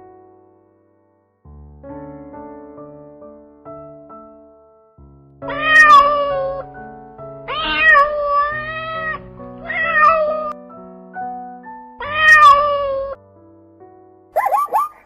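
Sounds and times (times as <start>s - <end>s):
soft piano music: 0.0s - 15.0s
cat meowing: 5.4s - 6.7s, 7.5s - 10.6s, 12.0s - 13.2s.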